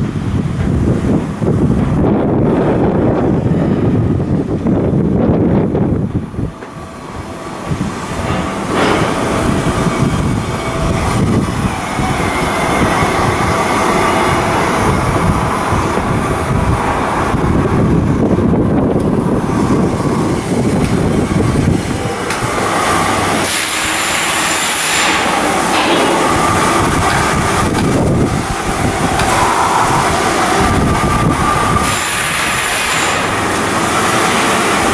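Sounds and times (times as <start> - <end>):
heavy machinery and metalwork: 0.0 - 34.9.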